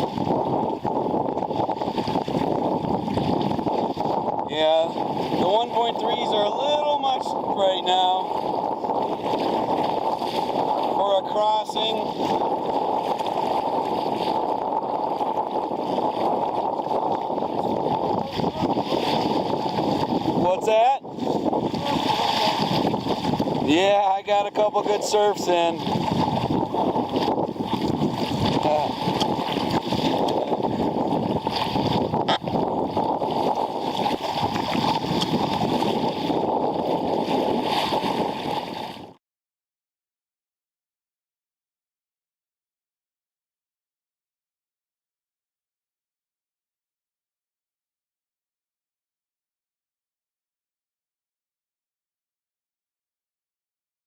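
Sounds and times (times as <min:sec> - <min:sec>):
water rushing along kayak hull: 0:00.0 - 0:39.2
wind noise: 0:00.0 - 0:39.2.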